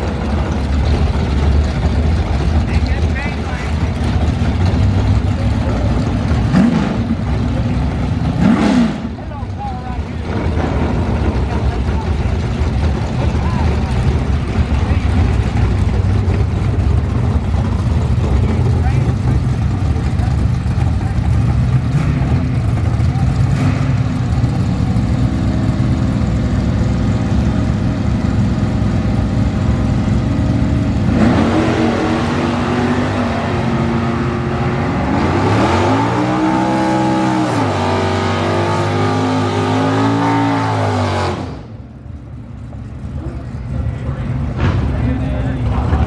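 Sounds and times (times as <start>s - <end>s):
car engine idling and revving: 0.0s - 46.0s.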